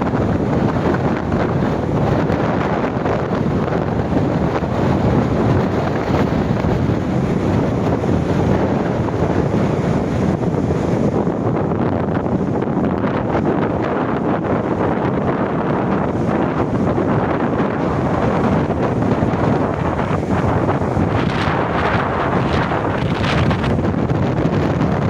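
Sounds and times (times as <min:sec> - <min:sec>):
gale wind buffeting microphone: 0:00.0 - 0:25.0
waves washing up beach: 0:00.0 - 0:25.0.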